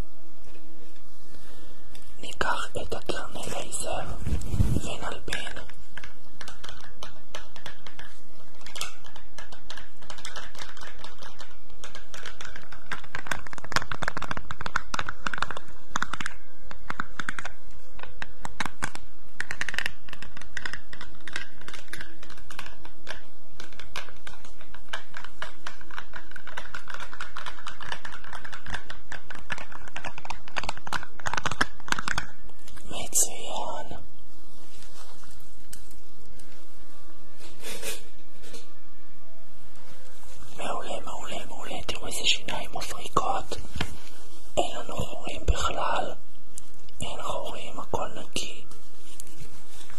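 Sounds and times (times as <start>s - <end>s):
steady hiss: 0.0s - 49.9s
clicking and tapping: 5.3s - 32.8s.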